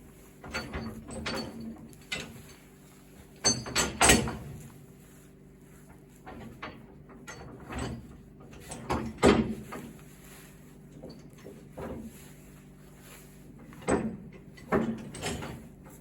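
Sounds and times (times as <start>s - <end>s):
metal chains clanking and rattling: 0.4s - 2.7s, 3.4s - 4.7s, 6.2s - 9.9s, 13.6s - 16.0s.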